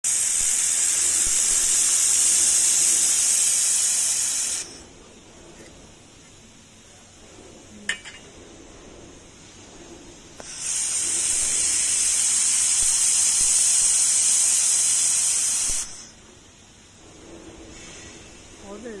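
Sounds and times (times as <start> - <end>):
laser welder hissing: 0.0 - 5.0, 10.4 - 16.2.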